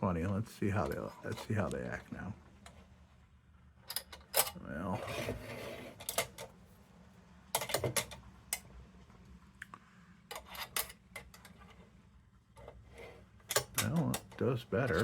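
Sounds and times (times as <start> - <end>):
metal lantern handle clinking: 13.5 - 15.0.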